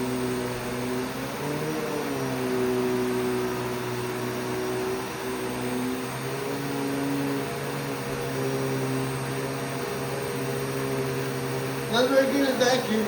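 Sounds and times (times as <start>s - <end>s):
vacuum cleaner running on carpet: 0.0s - 13.0s.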